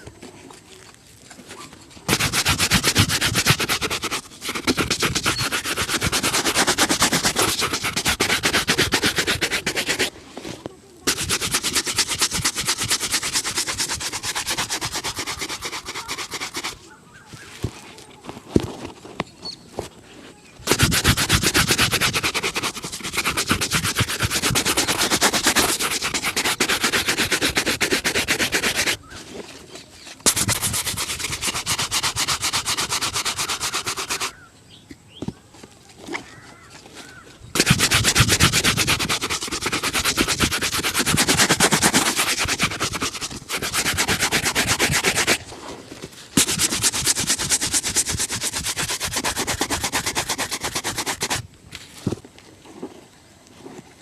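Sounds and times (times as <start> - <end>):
shoe being buffed by hand: 2.1 - 10.1, 11.0 - 17.8, 20.6 - 29.1, 30.2 - 34.4, 37.6 - 45.4, 46.4 - 51.4.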